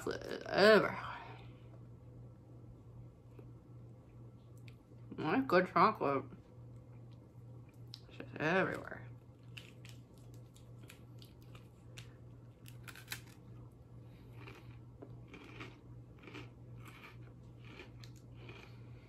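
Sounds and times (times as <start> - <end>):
steady low hum: 0.0 - 19.0
soft chewing smacks: 3.3 - 5.0, 6.8 - 8.1, 14.1 - 19.0.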